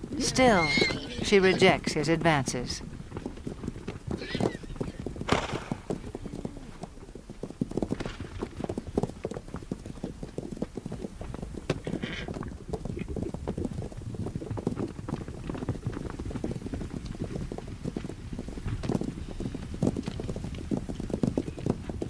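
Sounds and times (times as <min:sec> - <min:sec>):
horses galloping hoofbeats: 0:00.0 - 0:22.0.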